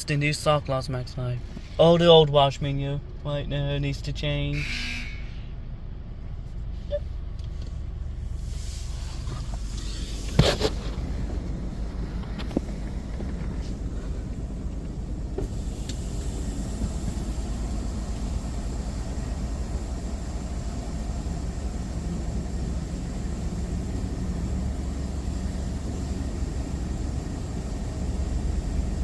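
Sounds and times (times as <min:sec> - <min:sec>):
car engine rumble inside cabin: 0:00.0 - 0:29.0
steady hiss: 0:15.4 - 0:29.0.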